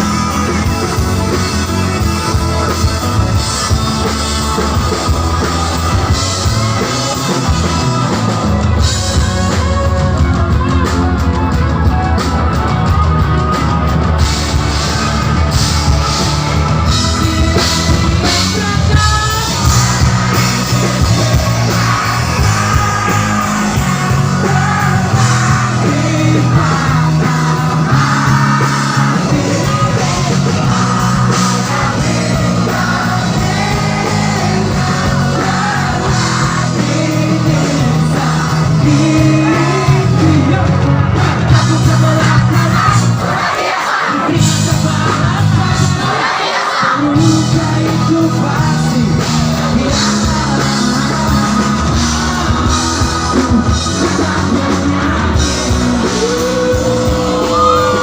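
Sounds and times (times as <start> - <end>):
bass: 0.0 - 58.0
drums: 0.0 - 58.0
rock music with singing: 0.0 - 58.0.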